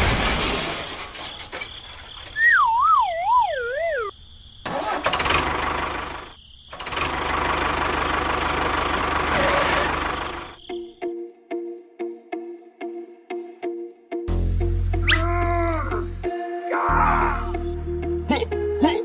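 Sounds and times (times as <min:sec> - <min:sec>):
wavering whistle-like tone: 0:02.4 - 0:04.1, 0:15.0 - 0:15.3
engine-like running noise: 0:04.7 - 0:10.6.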